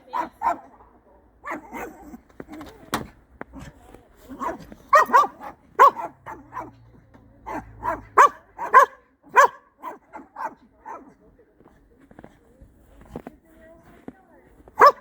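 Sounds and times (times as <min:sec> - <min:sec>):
dogs barking: 0:00.0 - 0:02.2, 0:04.3 - 0:11.2, 0:14.8 - 0:15.0.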